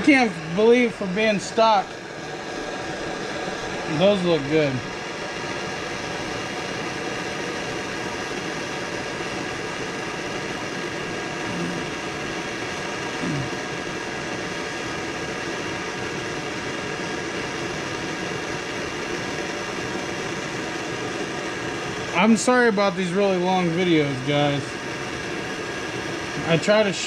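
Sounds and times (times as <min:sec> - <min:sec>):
steady whirring hum with hiss: 0:00.0 - 0:27.0.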